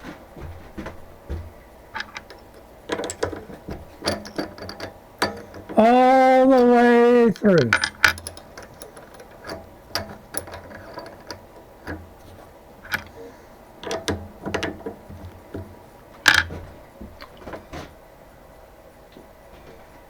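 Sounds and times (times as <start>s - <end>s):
metallic clicks and clinks: 1.9s - 16.6s
metal clank: 1.9s - 17.8s.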